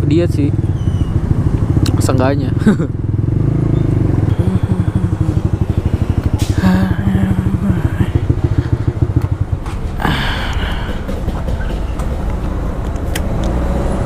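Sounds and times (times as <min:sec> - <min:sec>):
motorcycle engine running: 0:00.0 - 0:13.1
brief pitched tone: 0:03.7 - 0:06.8.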